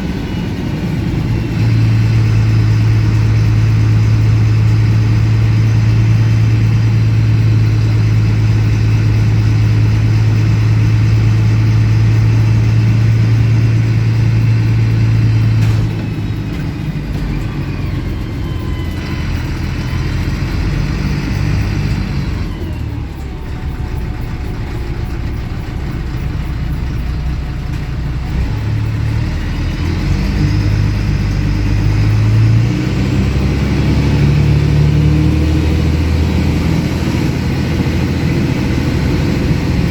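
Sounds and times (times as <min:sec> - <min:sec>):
bus diesel engine and exhaust: 0:00.0 - 0:39.9.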